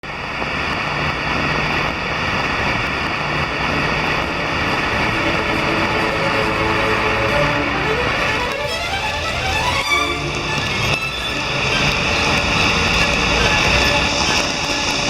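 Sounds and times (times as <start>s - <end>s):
heavy rain pouring: 0.0s - 15.0s
faint violin music: 3.6s - 15.0s.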